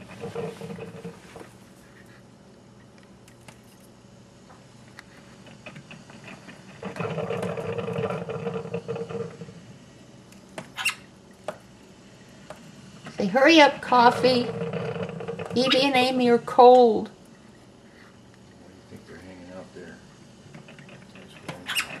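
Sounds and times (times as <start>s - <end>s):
coffee maker gurgling and hissing: 0.0s - 2.0s, 5.0s - 22.0s.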